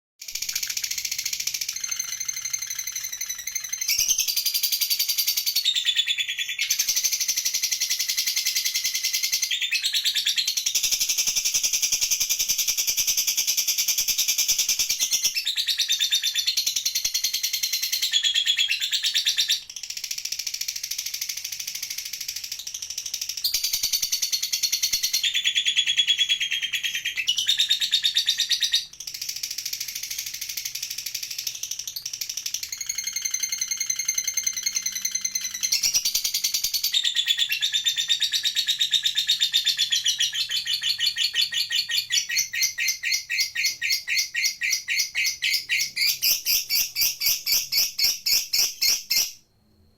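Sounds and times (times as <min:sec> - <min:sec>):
bird chattering trill: 0:00.2 - 0:11.5, 0:22.3 - 0:49.4.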